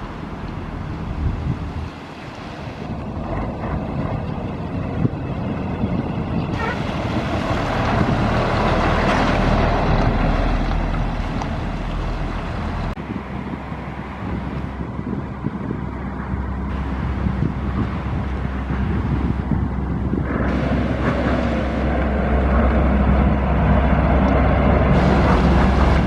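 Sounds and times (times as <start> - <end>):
lorry diesel engine driving past: 3.0 - 13.0, 20.2 - 26.0.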